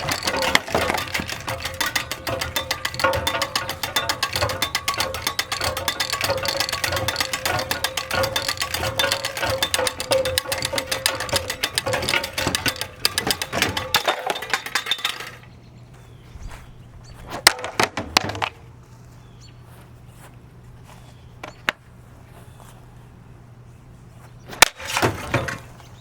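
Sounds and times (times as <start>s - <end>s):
metal and glass parts clattering: 0.0s - 15.6s, 24.5s - 26.0s
sharp knocks and clinks: 0.0s - 15.6s.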